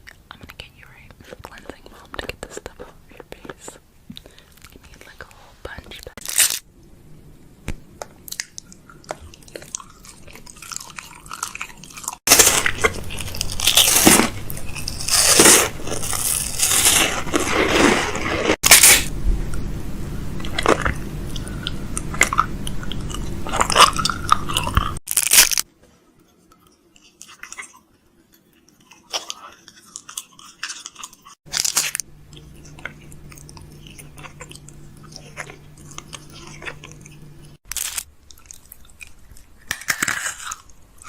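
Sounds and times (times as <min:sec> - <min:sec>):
steady low hum: 0:00.0 - 0:25.0, 0:31.5 - 0:41.0
close-up crunching and crinkling: 0:05.9 - 0:06.6, 0:08.2 - 0:19.1, 0:20.4 - 0:25.7, 0:26.6 - 0:41.0.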